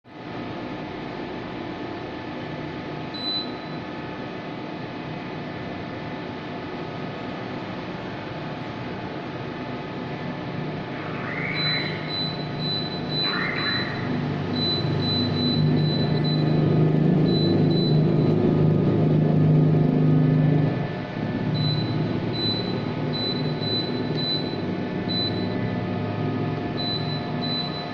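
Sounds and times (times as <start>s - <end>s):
air conditioner fan running: 0.1s - 27.9s
short high beep: 11.0s - 16.6s, 26.8s - 27.9s.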